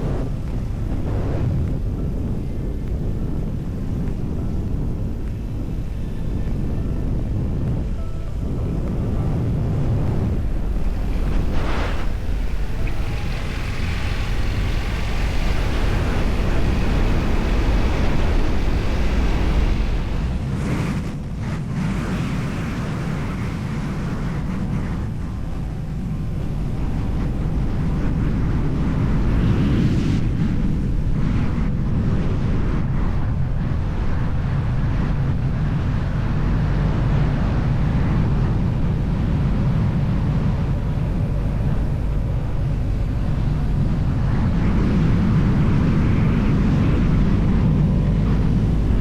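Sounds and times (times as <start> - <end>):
motorcycle engine rumble: 0.0 - 23.1, 33.1 - 49.0
wind rushing over microphone: 0.0 - 49.0.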